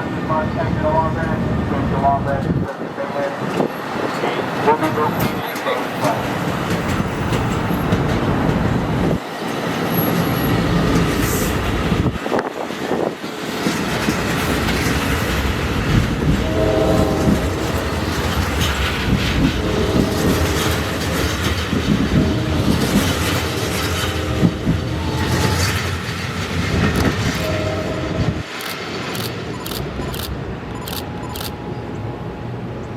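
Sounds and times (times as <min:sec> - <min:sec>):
train rumbling past: 0:00.0 - 0:32.9
wheels clacking over rail joints: 0:03.4 - 0:27.7
train horn blasts: 0:16.4 - 0:18.2, 0:19.4 - 0:21.1, 0:22.1 - 0:25.6, 0:27.2 - 0:28.5.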